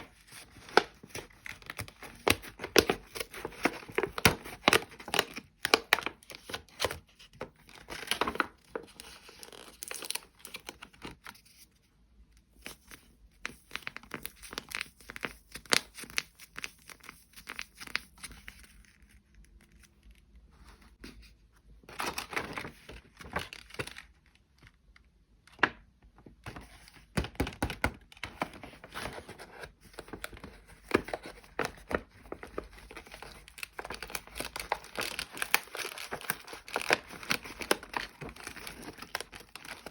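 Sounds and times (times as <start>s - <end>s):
packaging tearing and crinkling: 32.4s - 39.9s.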